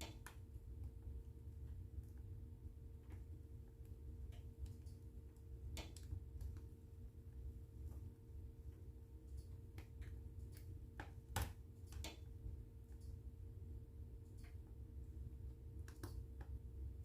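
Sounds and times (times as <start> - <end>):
faint steady hum: 0.0 - 17.0
low steady rumble: 0.0 - 17.0
wood fire crackling and popping: 3.0 - 6.8.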